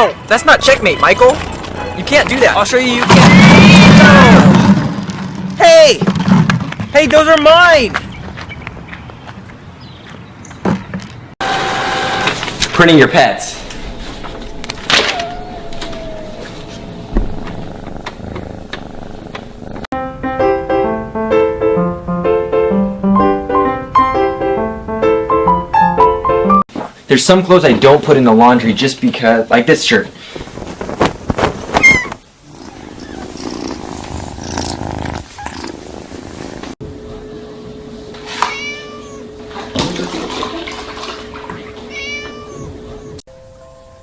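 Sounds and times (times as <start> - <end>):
rustling: 13.6 - 19.9, 30.2 - 36.8
cat meowing: 15.0 - 17.7, 31.8 - 32.2, 38.3 - 39.3, 41.9 - 43.2
piano music: 19.9 - 26.6, 40.9 - 44.0
steady hum: 36.8 - 41.9.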